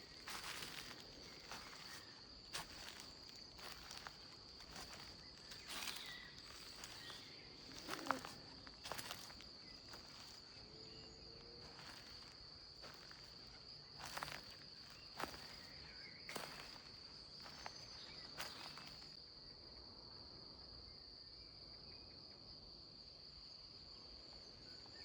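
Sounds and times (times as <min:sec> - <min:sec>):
footsteps on a path: 0:00.0 - 0:10.6, 0:11.6 - 0:19.2
crickets chirring: 0:00.0 - 0:19.5.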